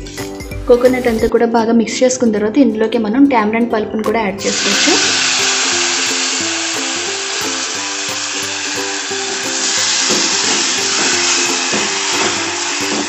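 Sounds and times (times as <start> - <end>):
background music with repeating melody: 0.0 - 13.0
sizzling hiss from pot: 4.4 - 13.0.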